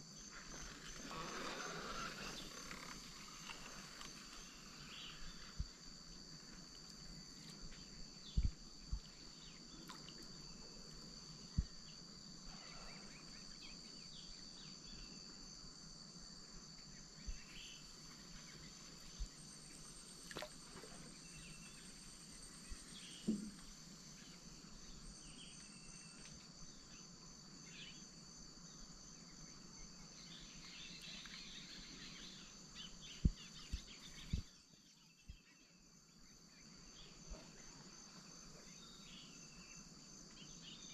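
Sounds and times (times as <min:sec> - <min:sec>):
insects chorus: 0:00.0 - 0:40.9
bird or frog calls: 0:00.4 - 0:05.5.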